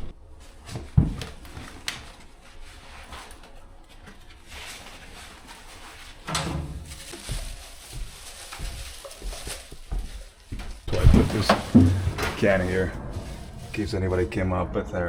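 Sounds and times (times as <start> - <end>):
rustling: 0.4 - 14.6
knocks and thuds: 10.9 - 15.0.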